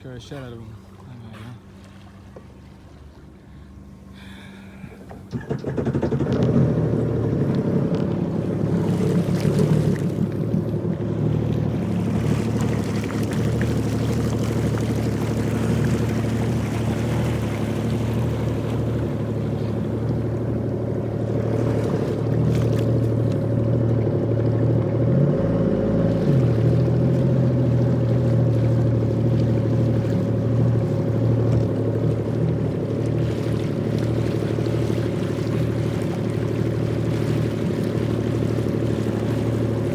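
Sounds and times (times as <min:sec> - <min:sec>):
jet ski engine running: 0:00.0 - 0:39.9.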